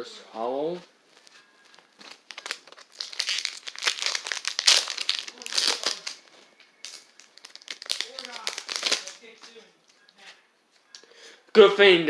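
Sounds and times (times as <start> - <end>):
foil wrapper crinkling: 1.2 - 9.6.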